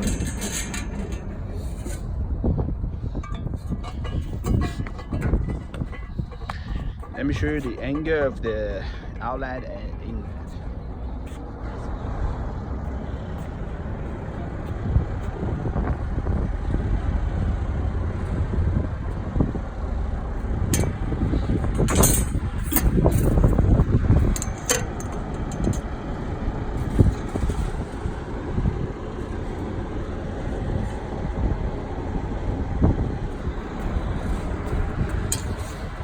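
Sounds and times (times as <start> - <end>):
metallic clanks and rattles: 0.0 - 11.4, 20.4 - 29.7, 33.1 - 36.0
steady low rumble: 0.0 - 36.0.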